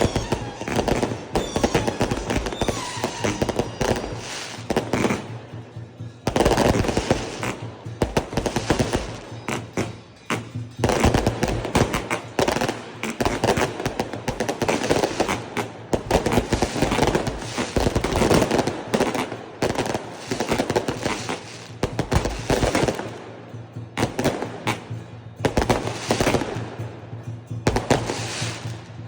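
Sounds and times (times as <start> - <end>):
fireworks banging and crackling: 0.0 - 29.0.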